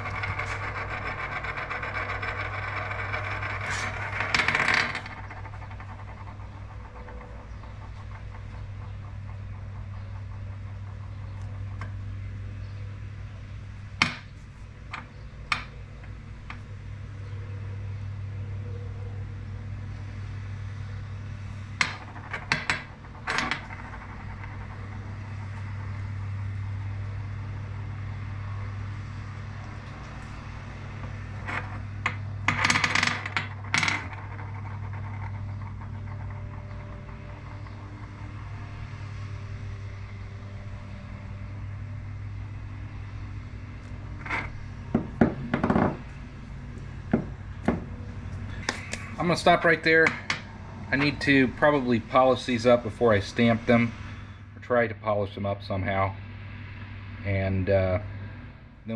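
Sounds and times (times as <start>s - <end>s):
spinning tops clattering: 0.0s - 12.0s
steady low hum: 0.0s - 58.9s.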